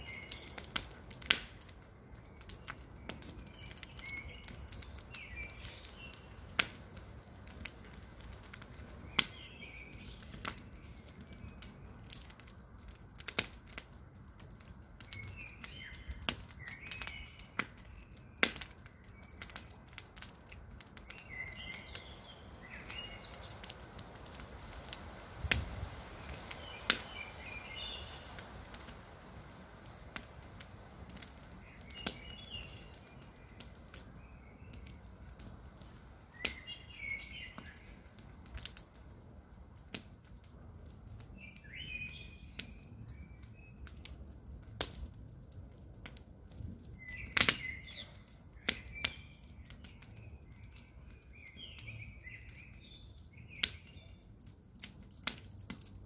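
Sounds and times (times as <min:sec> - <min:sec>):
birds chirping: 0:00.0 - 0:01.2, 0:02.1 - 0:06.5, 0:07.8 - 0:12.4, 0:15.0 - 0:25.0, 0:26.0 - 0:29.0, 0:31.1 - 0:38.3, 0:46.8 - 0:54.3
campfire crackling and popping: 0:00.0 - 0:56.0.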